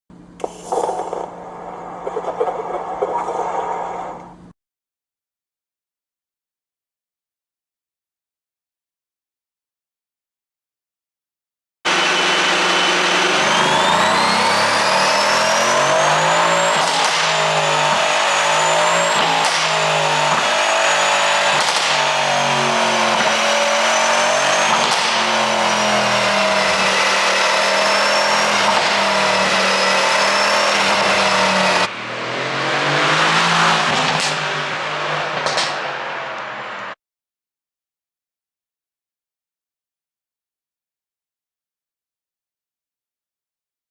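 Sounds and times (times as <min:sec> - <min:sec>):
car engine running hard: 0:11.9 - 0:37.0
sharp exhaust pops: 0:21.6 - 0:22.3, 0:33.8 - 0:34.5, 0:35.3 - 0:36.1.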